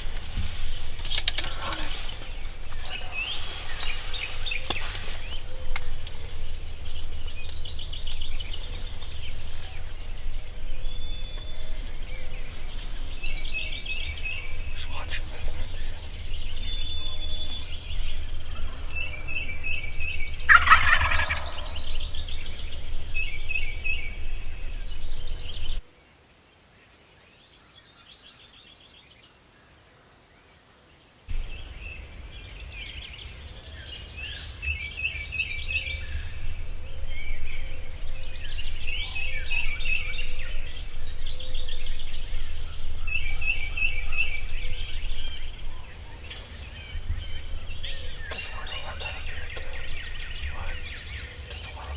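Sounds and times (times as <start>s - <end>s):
wind rumble on microphone: 0.0s - 25.8s, 31.3s - 51.9s
small birds chirping: 0.0s - 51.9s
turkey gobbling: 0.8s - 25.6s.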